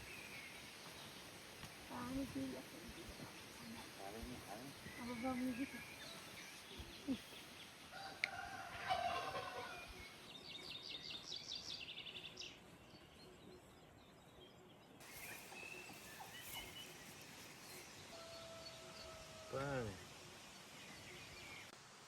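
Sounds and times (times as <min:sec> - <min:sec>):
poultry calling: 0:08.0 - 0:10.0, 0:18.1 - 0:19.8
turkey gobbling: 0:08.8 - 0:09.8.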